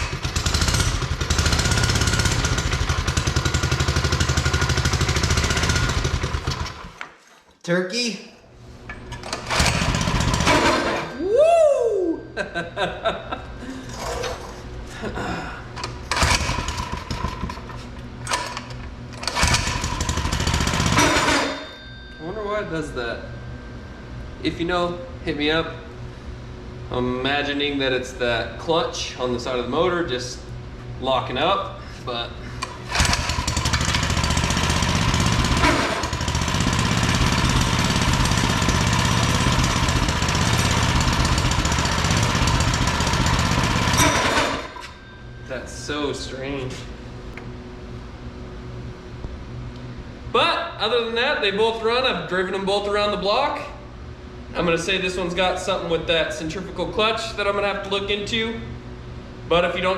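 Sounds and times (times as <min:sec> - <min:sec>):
small engine running: 0:00.0 - 0:07.0, 0:09.1 - 0:11.3, 0:15.8 - 0:21.8, 0:32.5 - 0:45.1.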